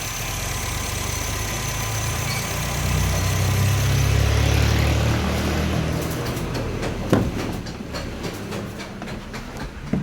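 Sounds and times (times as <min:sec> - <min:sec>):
high-pitched whistle: 0:01.2 - 0:04.1.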